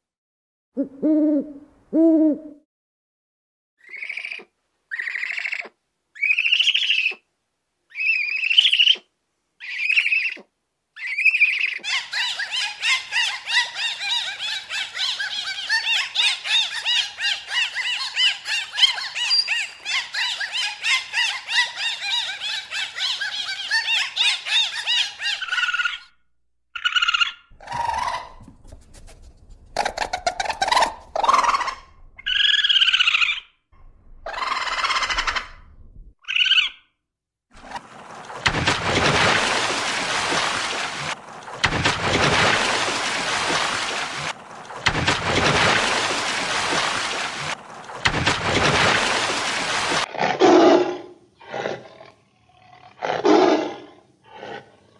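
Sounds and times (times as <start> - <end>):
high-pitched animal squeals: 7.9 - 9.0, 11.0 - 26.1, 26.8 - 28.4, 29.8 - 33.5, 34.2 - 35.6.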